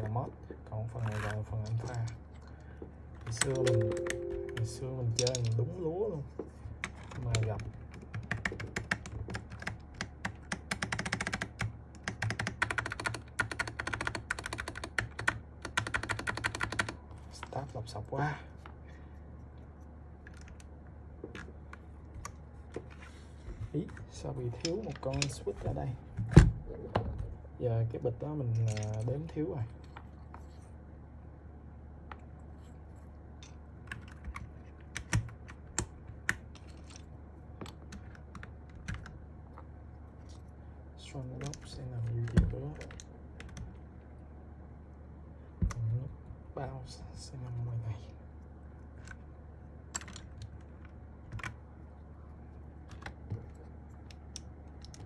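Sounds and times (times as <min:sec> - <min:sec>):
mechanical keyboard typing: 0:03.3 - 0:05.6, 0:06.8 - 0:17.6, 0:33.8 - 0:36.7, 0:37.6 - 0:39.2, 0:49.9 - 0:50.6, 0:52.8 - 0:53.6, 0:54.3 - 0:55.0.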